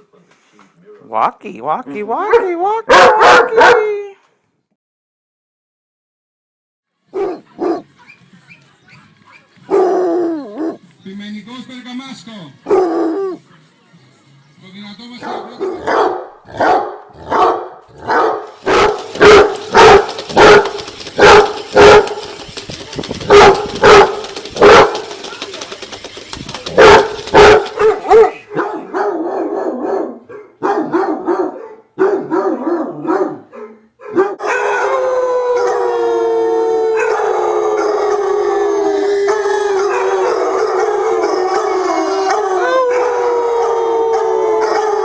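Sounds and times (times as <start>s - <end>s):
dog yipping: 2.3s - 3.8s, 7.1s - 8.1s, 8.9s - 10.8s, 12.7s - 13.4s, 15.2s - 35.0s
dogs barking: 2.3s - 3.9s, 7.1s - 8.2s, 8.9s - 10.8s, 12.6s - 13.4s, 15.2s - 35.9s, 39.3s - 45.0s
dog howling: 9.7s - 10.8s, 12.7s - 13.4s, 15.2s - 22.4s, 26.6s - 30.2s, 34.4s - 45.0s.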